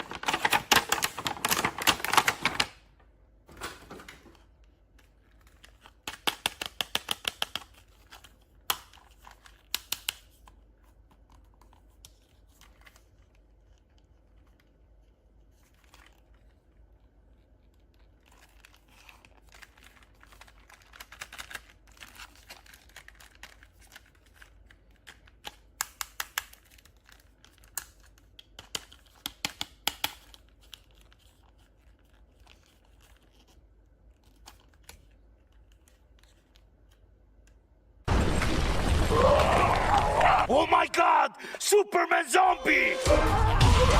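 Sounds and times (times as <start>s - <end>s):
plastic packaging crinkling: 0.0s - 3.0s, 11.7s - 25.3s.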